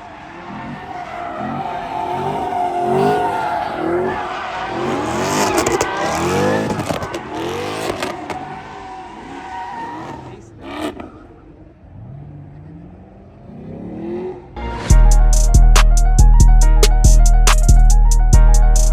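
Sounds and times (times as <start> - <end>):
car tires squealing: 0.0 - 14.5
car engine revving: 0.0 - 14.7.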